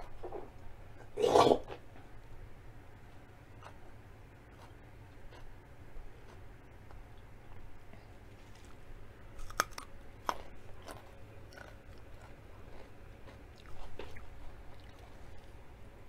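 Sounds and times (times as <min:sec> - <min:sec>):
carrot crunching: 0:08.3 - 0:15.6.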